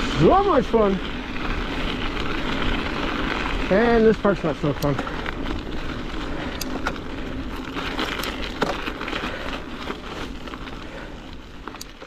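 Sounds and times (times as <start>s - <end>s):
sharp crackling clicks: 4.2s - 9.5s, 11.6s - 12.0s.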